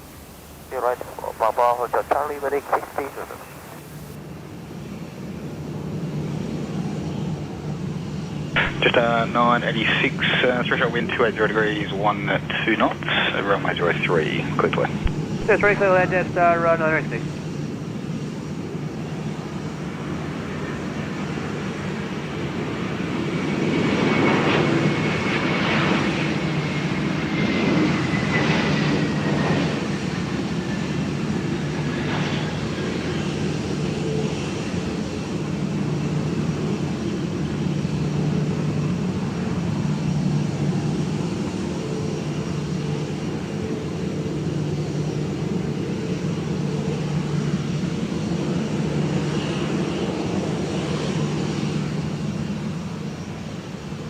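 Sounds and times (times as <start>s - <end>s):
high jet engine whine: 0.0s - 54.0s
jet airliner passing: 0.0s - 54.0s.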